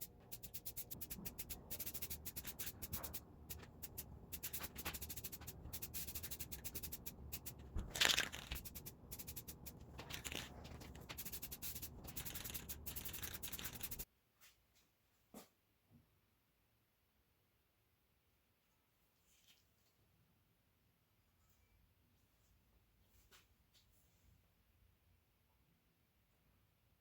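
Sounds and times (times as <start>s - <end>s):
abrasive rubbing strokes: 0.0s - 14.0s.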